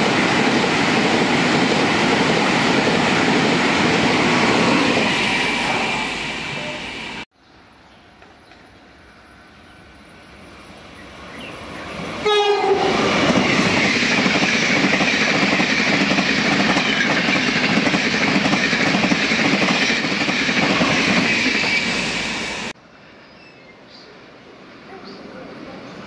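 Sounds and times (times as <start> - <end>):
train passing at high speed: 0.0 - 7.3, 9.8 - 23.2
train horn blast: 12.2 - 13.1.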